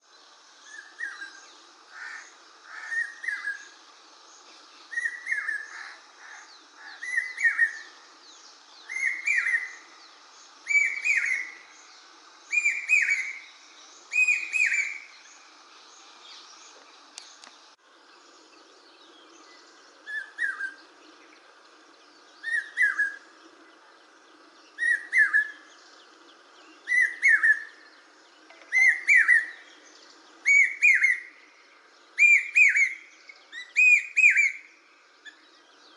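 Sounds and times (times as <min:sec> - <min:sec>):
bird shrill whistled calls: 0:08.9 - 0:09.8, 0:10.7 - 0:11.6, 0:12.5 - 0:13.4, 0:14.1 - 0:15.1, 0:22.4 - 0:23.2, 0:24.8 - 0:25.6, 0:26.8 - 0:27.8, 0:28.6 - 0:29.7, 0:30.4 - 0:31.3, 0:32.2 - 0:35.4.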